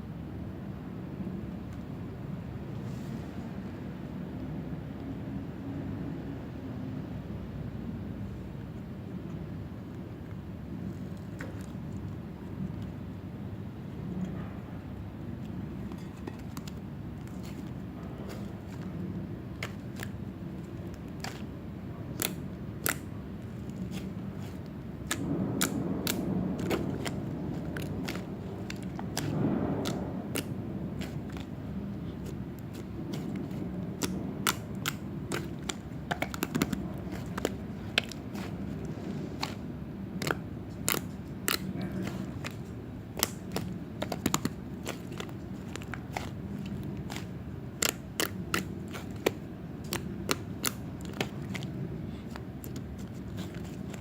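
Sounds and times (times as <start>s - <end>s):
steady low hum: 0.0s - 54.0s
slime clicking and popping: 22.2s - 23.1s, 23.8s - 31.5s, 32.1s - 51.7s.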